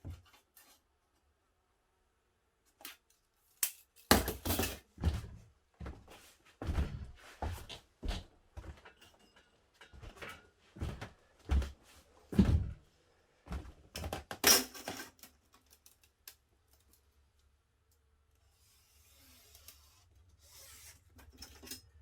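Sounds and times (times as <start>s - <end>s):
objects knocking and clunking: 4.1s - 5.4s, 13.9s - 15.3s.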